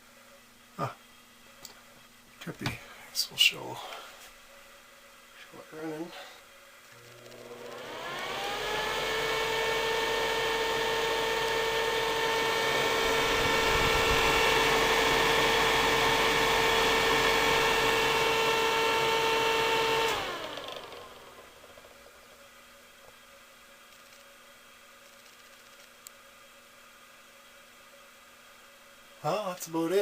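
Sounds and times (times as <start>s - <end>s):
exhaust fan whirring: 6.8s - 23.8s.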